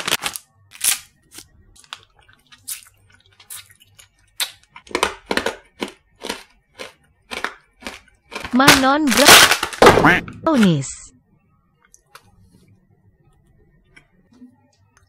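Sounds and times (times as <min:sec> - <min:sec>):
hard candy crunching: 0:00.0 - 0:10.2.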